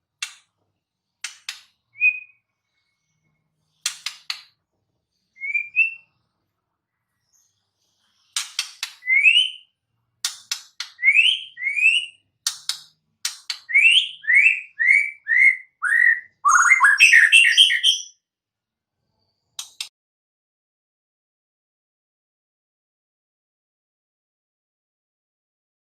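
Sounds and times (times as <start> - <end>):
bird singing whistled notes: 1.9 - 2.5, 5.3 - 6.2, 9.0 - 9.7, 11.0 - 12.2, 13.7 - 18.2.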